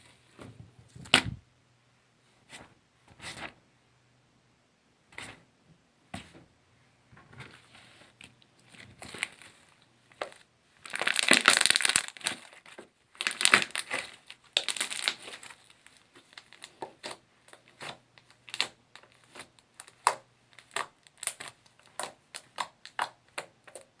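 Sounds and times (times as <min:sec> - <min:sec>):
slime squelching: 0:10.2 - 0:24.0.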